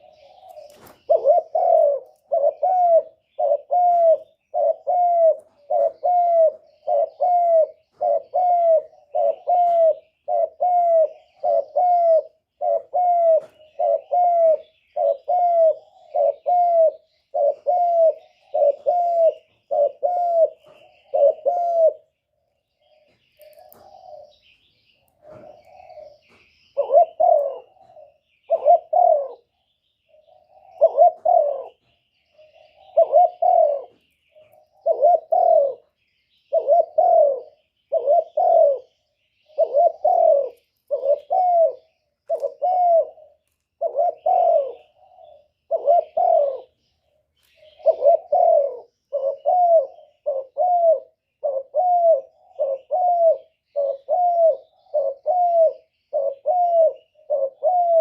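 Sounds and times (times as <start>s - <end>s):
dove cooing: 0.0s - 58.0s
small birds chirping: 0.0s - 58.0s.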